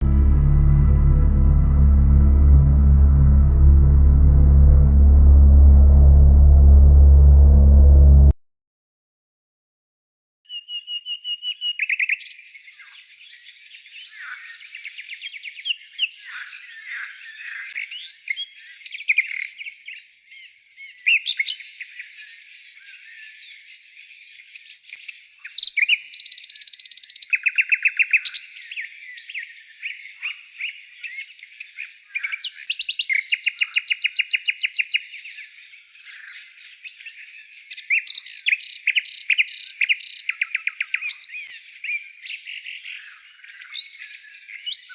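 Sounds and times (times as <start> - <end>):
chorus of songbirds singing: 11.9 - 44.9.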